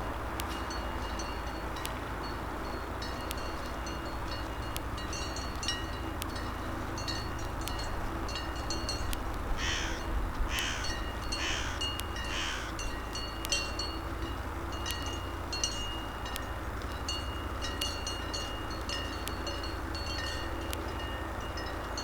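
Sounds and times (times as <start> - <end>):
low steady rumble: 0.0 - 22.0
bird harsh caws: 9.6 - 12.8.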